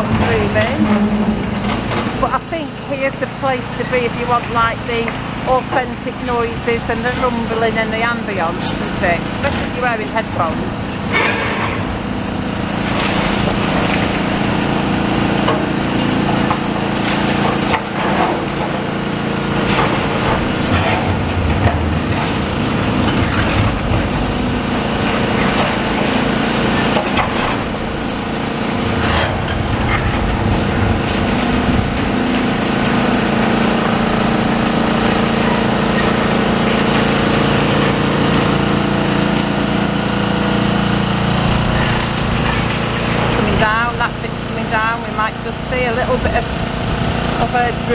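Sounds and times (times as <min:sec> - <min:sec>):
excavator engine and hydraulics: 0:00.0 - 0:47.9.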